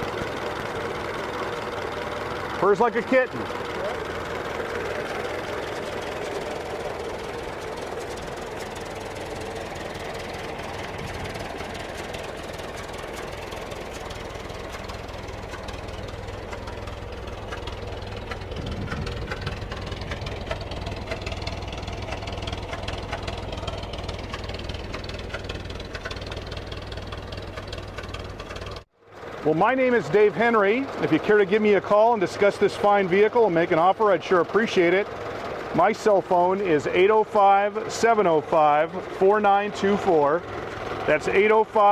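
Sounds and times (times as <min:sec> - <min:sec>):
old truck engine running smoothly: 0:00.0 - 0:41.9.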